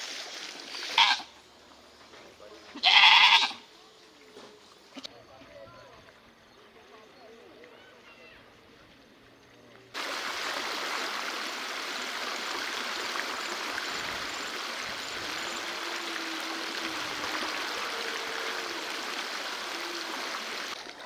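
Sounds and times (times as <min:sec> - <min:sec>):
floodwater rushing: 0:00.0 - 0:01.0, 0:10.0 - 0:21.0.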